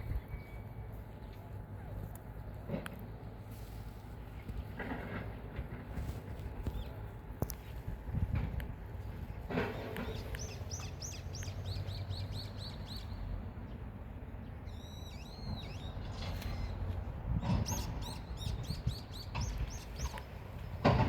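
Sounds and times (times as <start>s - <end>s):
songbird chirping: 9.6s - 13.8s.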